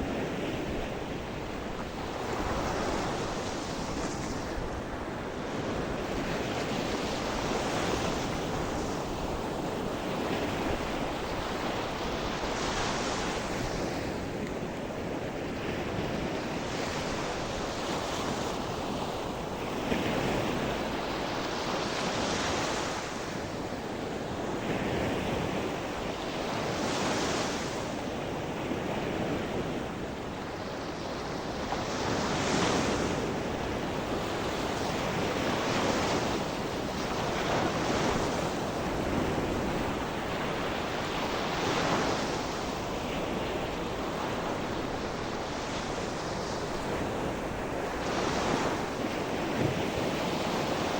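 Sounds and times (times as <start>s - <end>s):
wind on microphone: 0.0s - 50.9s.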